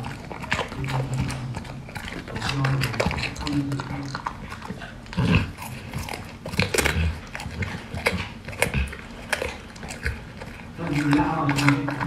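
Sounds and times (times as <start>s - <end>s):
dog crunching a carrot: 0.0s - 12.0s.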